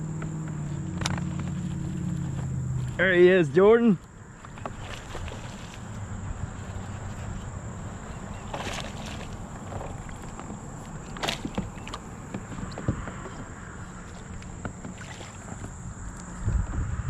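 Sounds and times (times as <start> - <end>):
water and wind rumble: 0.0 - 17.0
water swishes: 4.1 - 16.2.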